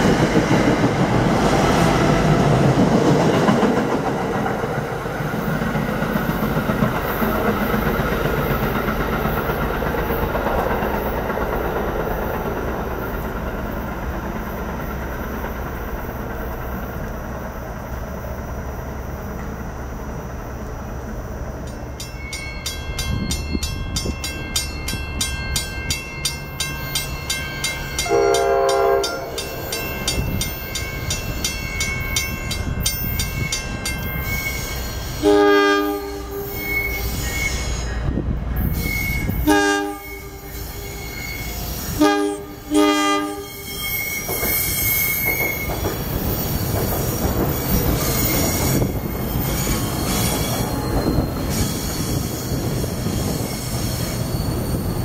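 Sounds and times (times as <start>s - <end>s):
train wheels on rails: 0.0s - 55.0s
train horn blasts: 28.0s - 29.5s, 35.2s - 37.1s, 38.8s - 43.9s.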